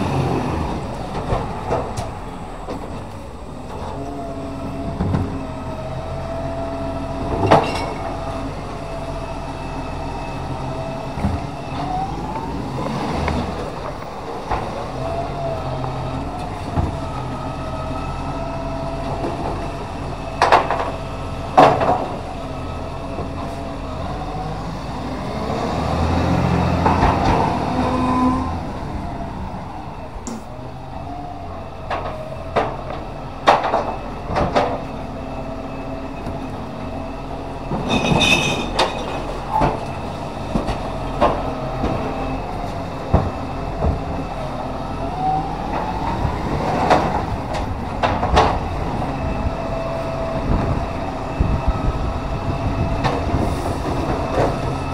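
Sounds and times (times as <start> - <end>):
garbage truck engine and hydraulics whine: 0.0 - 54.9.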